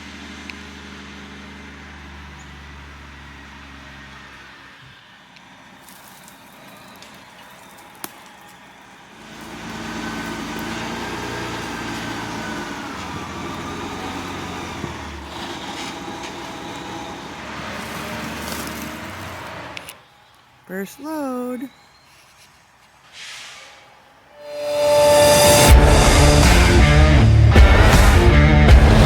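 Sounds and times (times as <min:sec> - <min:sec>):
truck engine running: 0:00.0 - 0:21.4, 0:24.6 - 0:29.0.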